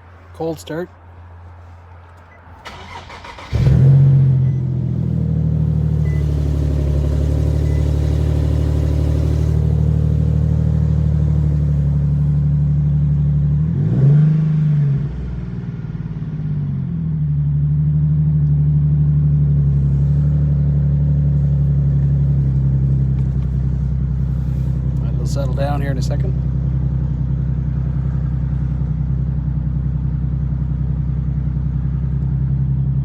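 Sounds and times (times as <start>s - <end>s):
car engine idling and revving: 0.0s - 33.0s.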